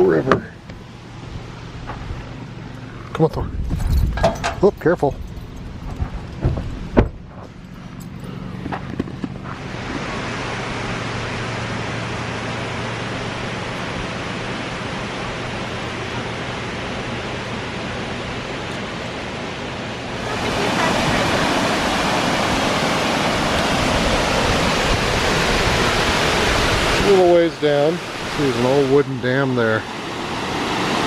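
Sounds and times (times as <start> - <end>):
waterfall rushing: 9.4 - 31.0.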